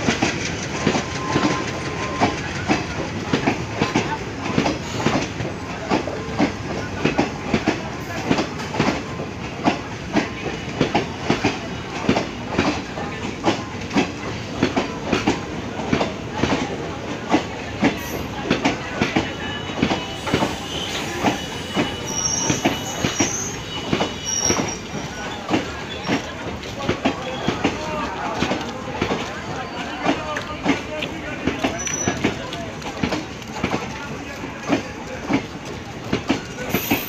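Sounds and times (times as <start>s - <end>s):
train wheels clattering over rail joints: 0.0s - 37.0s
high wheel squeal: 19.5s - 26.2s.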